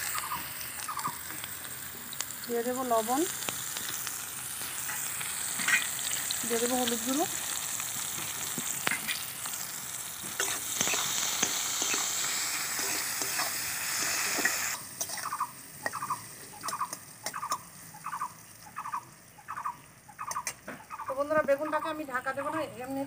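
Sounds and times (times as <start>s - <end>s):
eggplant sizzling in hot oil: 0.0s - 23.0s
spatula scraping a pan: 5.6s - 6.2s, 10.2s - 15.3s.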